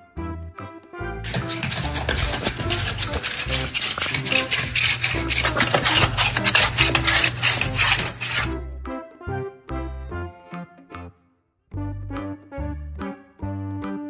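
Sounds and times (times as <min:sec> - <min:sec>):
rapid rasping strokes: 0:01.3 - 0:08.6
music with low bass line: 0:11.8 - 0:14.0.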